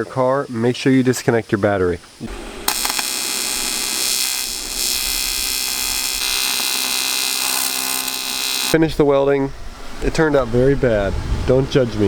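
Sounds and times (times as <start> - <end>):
electric arc welding crackle: 2.3 - 8.8.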